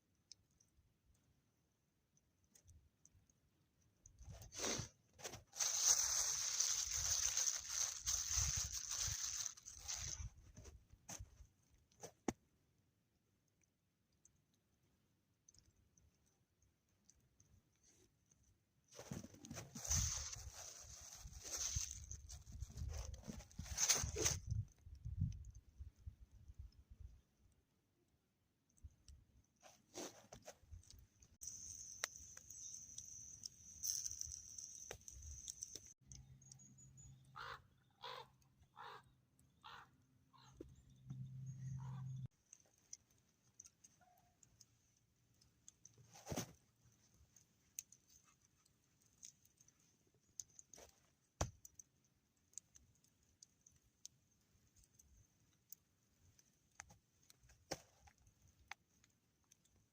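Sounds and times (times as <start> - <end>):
bird calling: 37.2 - 40.9.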